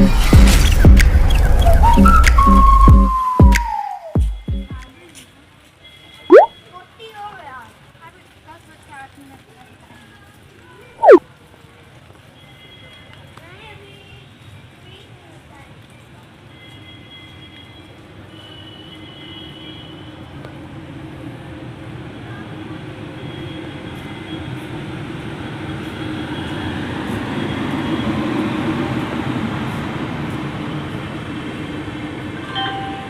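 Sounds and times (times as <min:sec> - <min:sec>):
train rumbling into station: 0:20.8 - 0:33.0.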